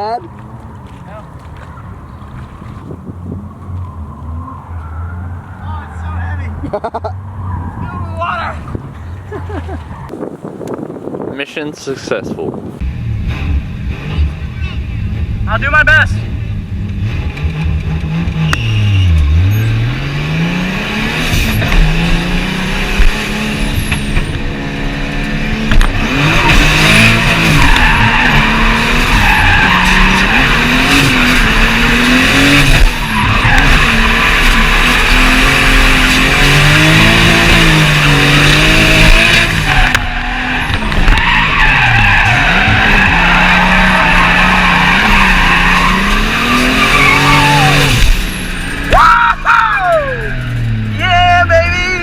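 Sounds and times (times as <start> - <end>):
car engines revving hard: 0.0 - 11.3, 12.4 - 52.0
tyres squealing: 26.1 - 52.0.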